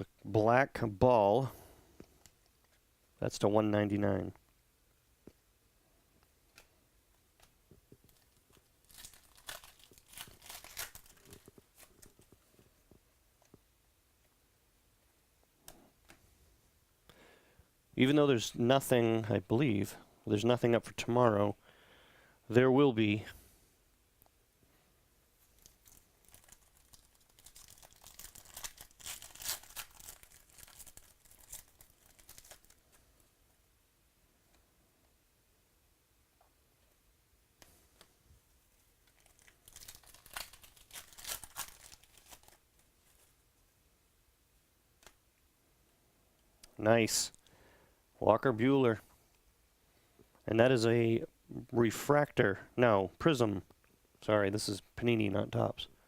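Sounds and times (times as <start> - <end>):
wrapper tearing and crinkling: 8.0 - 12.3, 25.6 - 33.0, 39.0 - 43.3.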